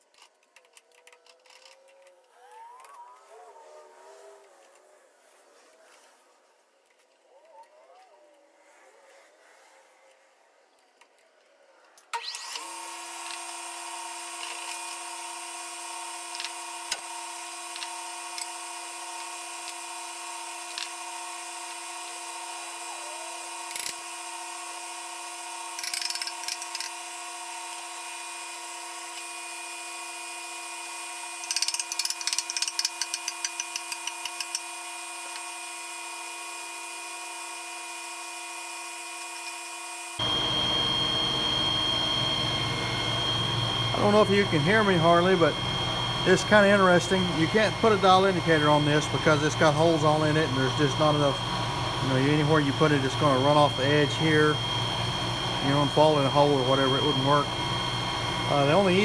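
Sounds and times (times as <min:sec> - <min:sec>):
metal lathe whining: 0:12.2 - 0:59.0.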